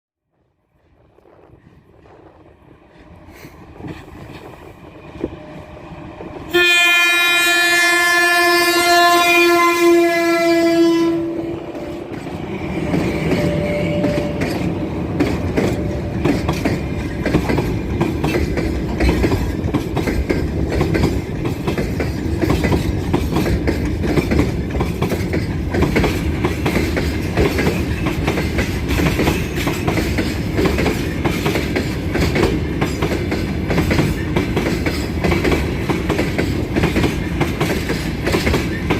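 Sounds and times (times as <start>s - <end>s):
freight train rumbling: 0.4s - 38.9s
locomotive horn blast: 6.5s - 14.8s
wheels clattering over rails: 12.0s - 38.9s.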